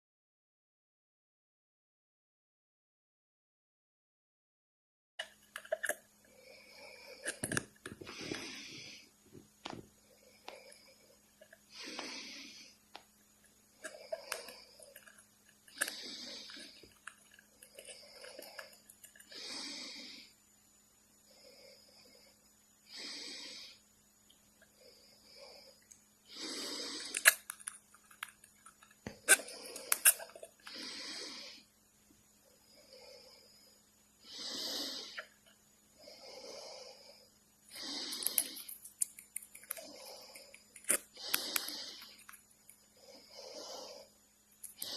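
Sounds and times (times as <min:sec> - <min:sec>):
snoring-like wheezes: 0:05.8 - 0:09.5, 0:10.1 - 0:12.8, 0:13.7 - 0:20.4, 0:21.3 - 0:23.8, 0:24.7 - 0:27.5, 0:29.1 - 0:31.7, 0:32.5 - 0:38.8, 0:39.6 - 0:42.3, 0:42.9 - 0:44.9
parrot hissing: 0:13.8 - 0:17.0, 0:26.3 - 0:27.5, 0:29.1 - 0:31.6, 0:34.2 - 0:35.3, 0:37.7 - 0:38.7, 0:39.5 - 0:42.2.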